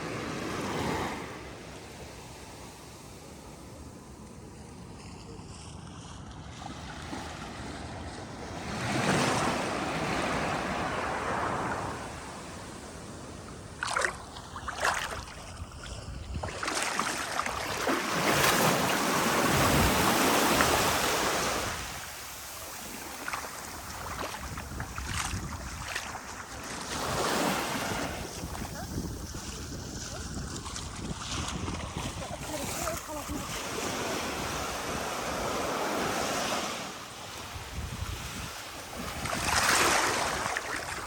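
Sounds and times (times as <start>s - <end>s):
surf breaking on beach: 16.6s - 41.0s.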